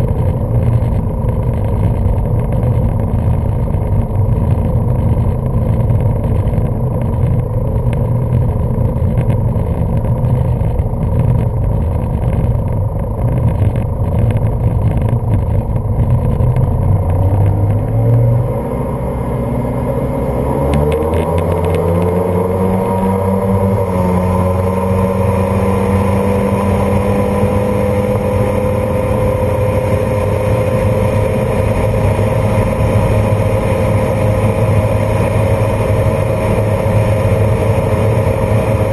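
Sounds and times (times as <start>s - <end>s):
boat engines revving: 17.4s - 38.9s.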